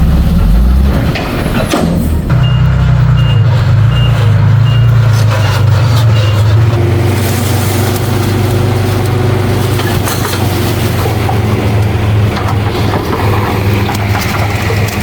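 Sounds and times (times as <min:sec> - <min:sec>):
heavy diesel machine running: 0:00.0 - 0:15.0
reversing alarm beeping: 0:02.3 - 0:06.8.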